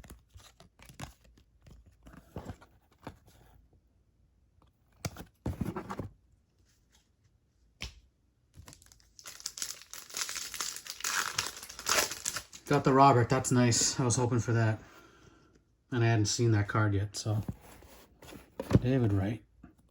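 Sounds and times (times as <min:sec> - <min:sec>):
trading cards clicking and rustling: 0:08.6 - 0:12.7
card pack wrapper tearing and crinkling: 0:08.6 - 0:12.8.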